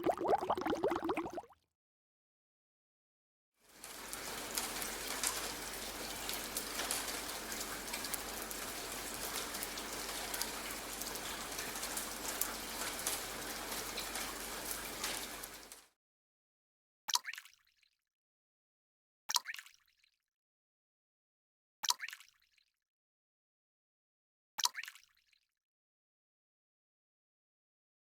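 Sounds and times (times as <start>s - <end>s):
steady rain patter: 3.6s - 15.8s.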